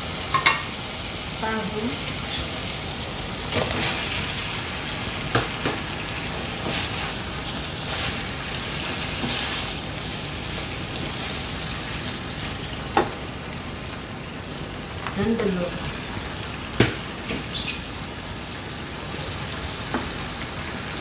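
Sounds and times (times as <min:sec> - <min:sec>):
paste sizzling in hot oil: 0:00.0 - 0:15.0.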